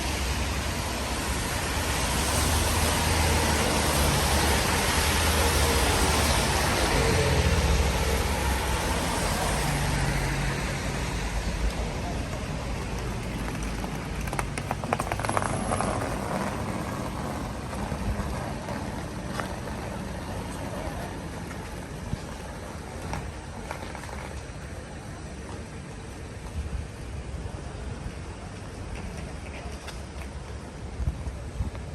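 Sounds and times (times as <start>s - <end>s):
rain hiss: 0.0s - 14.1s
car passing on wet street: 0.0s - 24.6s.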